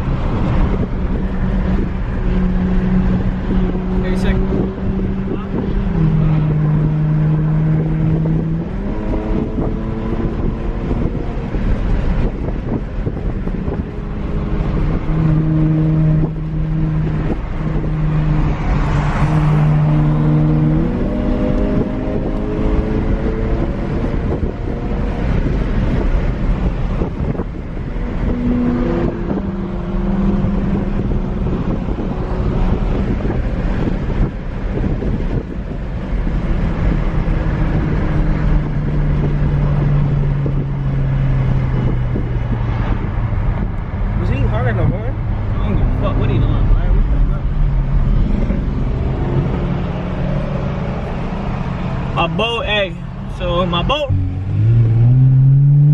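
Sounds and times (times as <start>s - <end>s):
road and wind noise: 0.0s - 55.9s.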